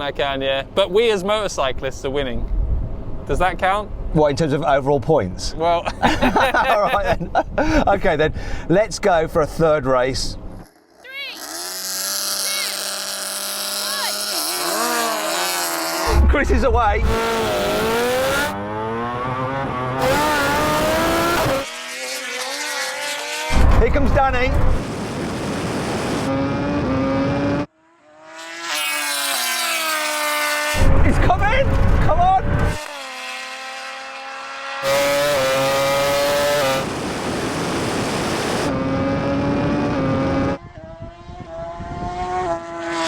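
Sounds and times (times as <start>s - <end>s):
rushing wind and road noise: 0.0s - 10.7s, 13.5s - 21.7s, 23.5s - 27.7s, 30.6s - 32.9s, 34.8s - 43.0s
motorcycle engine revving hard: 10.6s - 16.4s, 17.0s - 43.0s.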